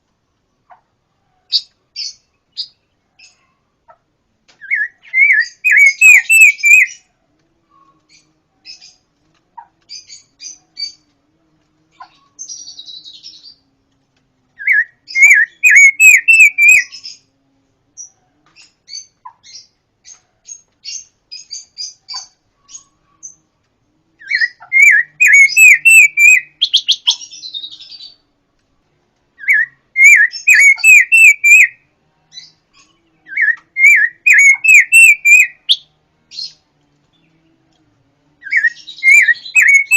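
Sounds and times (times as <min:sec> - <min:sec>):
songbird whistling phrases: 0:04.6 - 0:07.0, 0:14.6 - 0:17.2, 0:24.2 - 0:28.2, 0:29.4 - 0:31.8, 0:33.3 - 0:35.9, 0:38.4 - 0:39.9
soft bird chirps: 0:04.6 - 0:07.1, 0:14.6 - 0:17.4, 0:24.2 - 0:28.2, 0:29.4 - 0:31.8, 0:32.4 - 0:37.8, 0:38.4 - 0:39.9.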